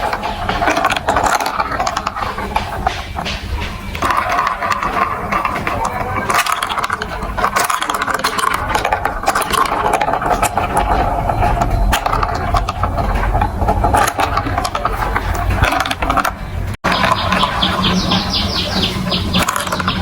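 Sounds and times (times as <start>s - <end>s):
marbles rolling on plastic track: 0.0s - 20.0s.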